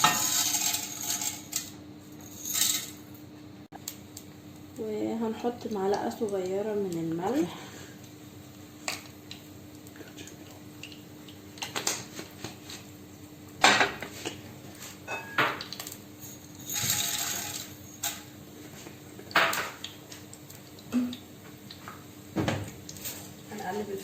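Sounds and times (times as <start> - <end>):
metal spoon clinking on pot: 0.0 - 1.7.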